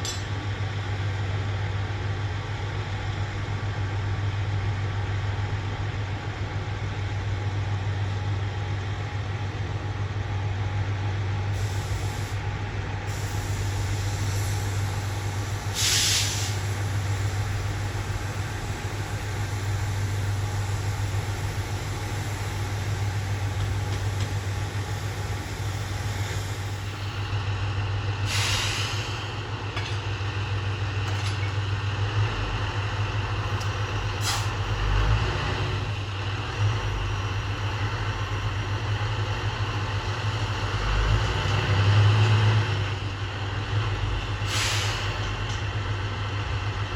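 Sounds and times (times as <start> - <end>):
diesel railcar idling hum: 0.0 - 46.9
brake air hiss: 11.5 - 12.4, 13.1 - 27.3, 28.2 - 29.4, 34.1 - 34.6, 44.4 - 45.4.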